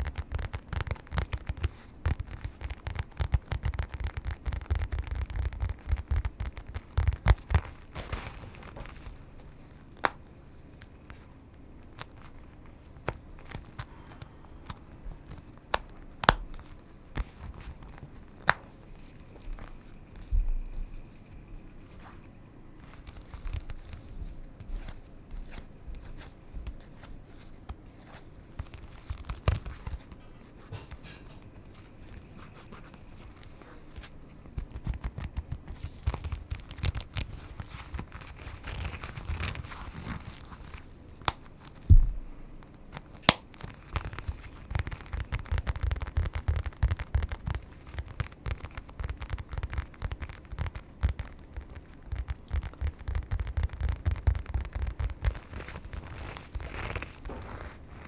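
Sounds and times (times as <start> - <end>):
crinkling and rustling: 0.0 - 58.0
handling thumps: 41.8 - 42.5.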